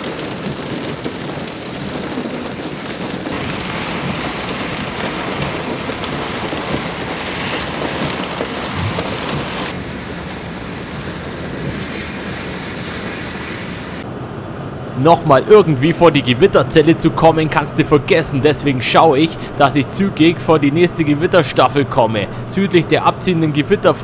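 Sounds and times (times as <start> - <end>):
heavy rain downpour hissing: 0.0 - 14.0.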